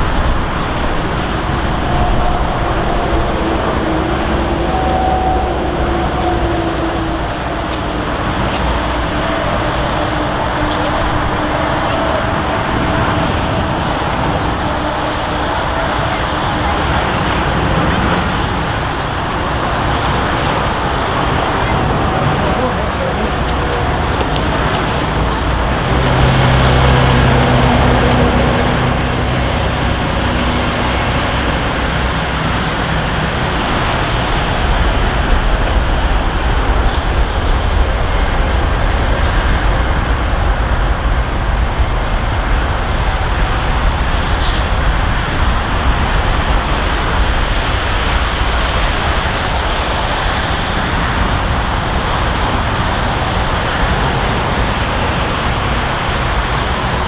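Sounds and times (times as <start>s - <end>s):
low hum: 0.0s - 33.8s
jet engines rumbling: 0.0s - 57.0s.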